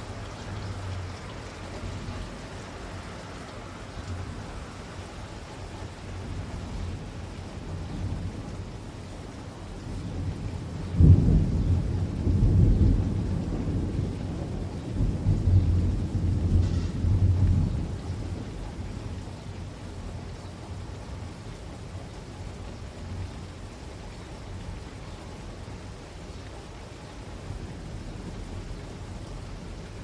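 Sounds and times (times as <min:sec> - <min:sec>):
steady rain: 0:00.0 - 0:30.0
rolling thunder: 0:09.9 - 0:19.3.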